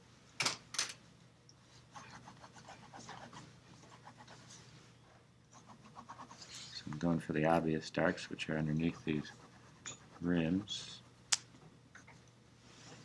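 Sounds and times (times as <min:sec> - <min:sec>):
pencil scratching on paper: 0:01.9 - 0:04.6, 0:05.5 - 0:06.9, 0:08.5 - 0:11.1.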